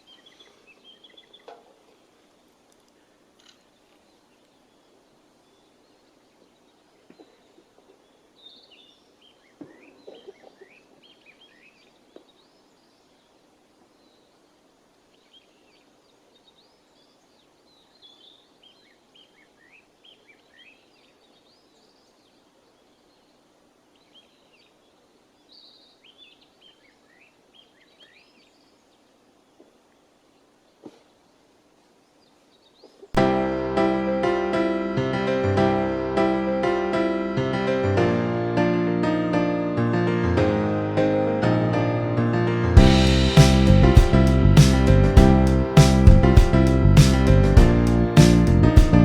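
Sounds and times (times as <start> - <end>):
songbirds chirping: 0.0 - 33.2.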